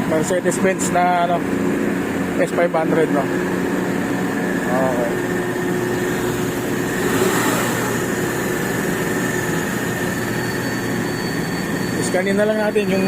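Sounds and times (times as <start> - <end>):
car engine idling: 3.5 - 11.1.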